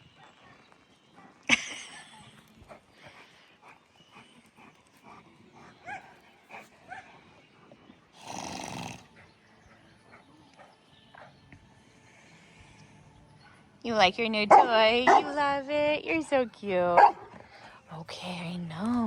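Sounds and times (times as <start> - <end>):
dog yipping: 14.5 - 15.4.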